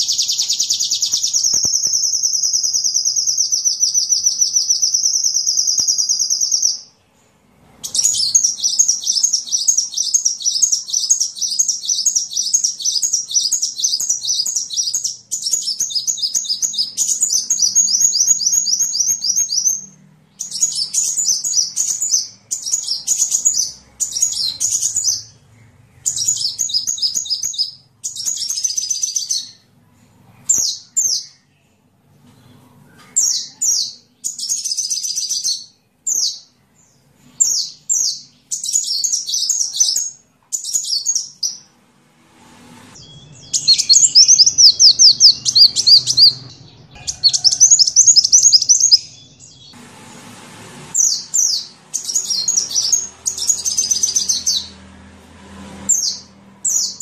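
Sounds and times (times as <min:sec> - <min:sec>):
bird trilling chirps: 0:00.0 - 0:07.0, 0:07.8 - 0:29.7, 0:43.0 - 0:49.8, 0:51.0 - 0:54.8.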